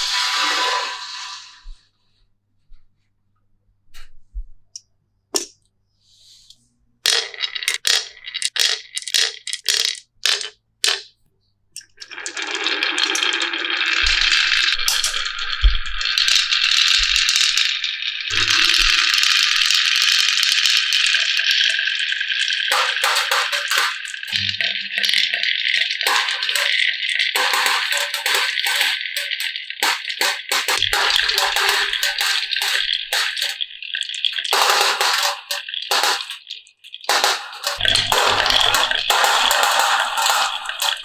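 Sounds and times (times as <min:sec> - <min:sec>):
marbles rattling down wooden track: 0:07.1 - 0:11.1, 0:12.0 - 0:15.2, 0:18.3 - 0:41.0
pieces clacking on wooden track: 0:07.1 - 0:11.1, 0:22.7 - 0:33.6, 0:34.3 - 0:36.5, 0:37.1 - 0:41.0.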